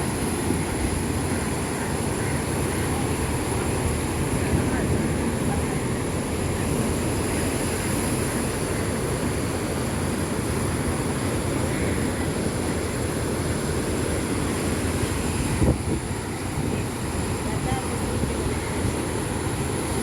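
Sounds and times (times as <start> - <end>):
waves washing: 0.0 - 20.0
wind: 0.0 - 20.0.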